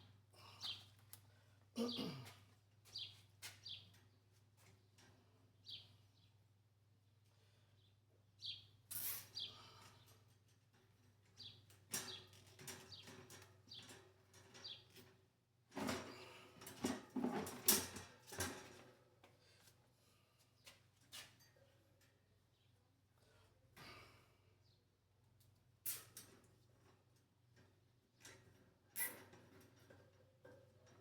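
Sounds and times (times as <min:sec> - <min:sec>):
objects clattering and scraping: 0:15.7 - 0:19.0.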